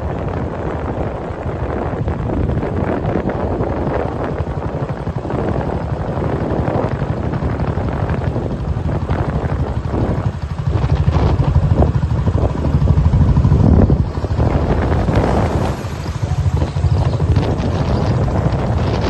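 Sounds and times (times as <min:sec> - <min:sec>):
wind buffeting microphone: 0:00.0 - 0:19.0
waterfall rushing: 0:14.4 - 0:17.9.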